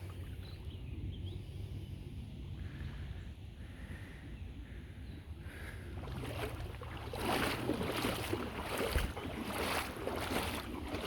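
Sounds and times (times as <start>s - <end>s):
wind rumble on microphone: 0.0s - 11.0s
feet wading through water: 5.5s - 11.0s.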